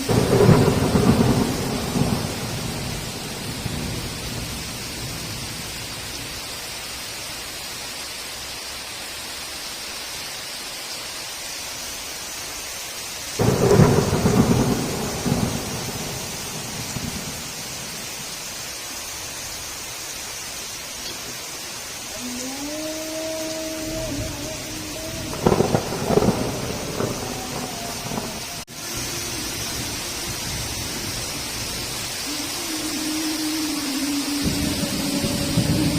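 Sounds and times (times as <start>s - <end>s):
thunder clap and rumble: 0.0s - 6.3s, 13.4s - 18.3s, 23.9s - 32.3s, 34.4s - 35.9s
heavy rain falling: 0.0s - 35.9s.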